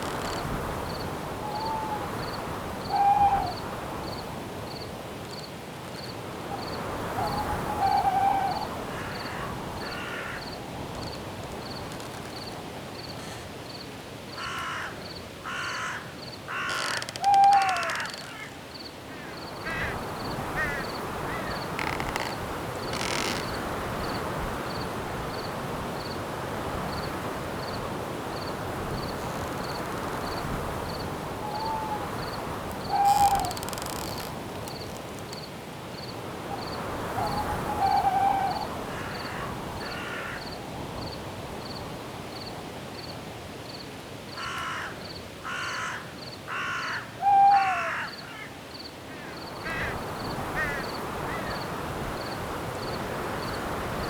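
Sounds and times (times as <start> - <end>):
crickets chirping: 0.0 - 54.0
wind through branches: 0.0 - 54.0
birds calling: 15.5 - 18.6, 31.5 - 34.3.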